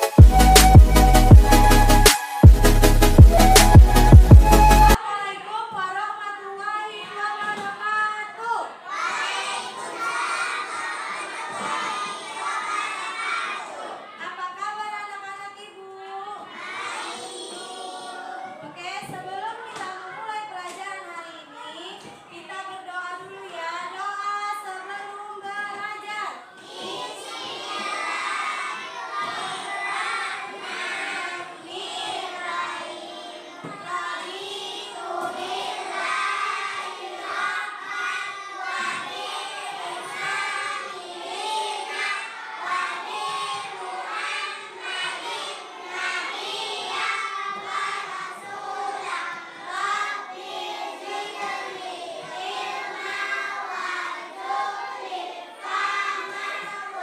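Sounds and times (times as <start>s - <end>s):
children singing together: 8.8s - 14.2s, 16.4s - 18.8s, 26.5s - 57.0s.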